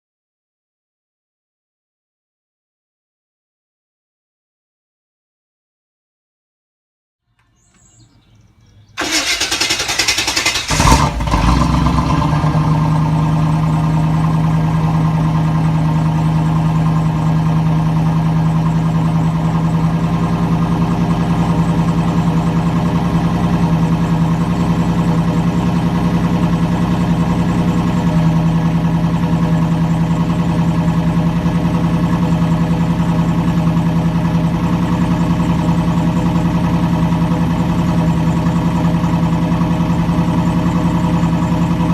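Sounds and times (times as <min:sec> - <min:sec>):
car engine starting and idling: 0:07.4 - 0:41.9.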